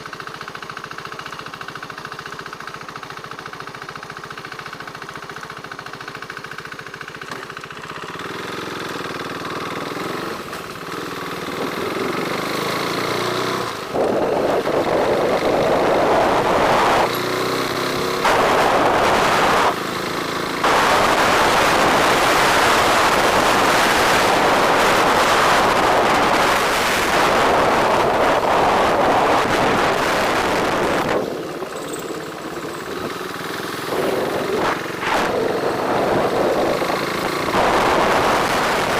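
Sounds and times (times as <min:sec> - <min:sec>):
motorcycle engine: 0:00.0 - 0:38.9
wind noise while riding: 0:10.9 - 0:19.8, 0:20.5 - 0:38.9.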